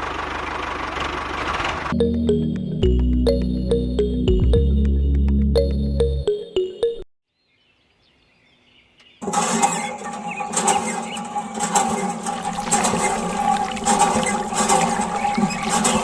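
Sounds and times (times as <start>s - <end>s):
music: 1.9s - 7.0s
water gushing and splashing: 11.6s - 16.0s.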